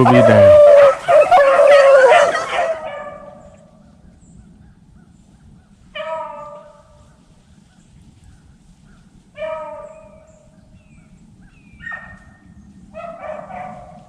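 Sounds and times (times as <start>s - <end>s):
dogs baying: 0.0s - 3.3s.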